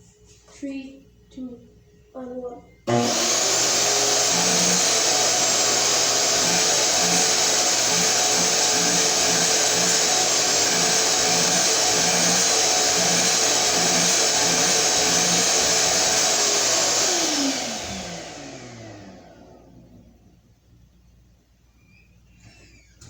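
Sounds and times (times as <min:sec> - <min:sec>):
vacuum cleaner whining: 0:02.8 - 0:20.2.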